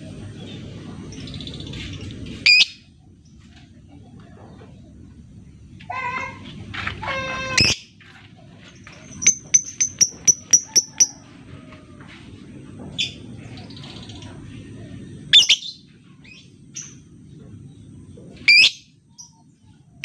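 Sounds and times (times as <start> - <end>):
bird squawking and chirping: 7.0 - 7.9.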